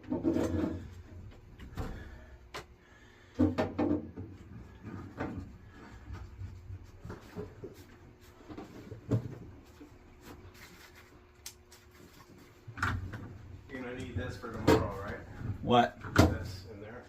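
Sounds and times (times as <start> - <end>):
pipe fittings knocking and clunking: 0.0 - 7.7
faint steady hum: 0.0 - 17.0.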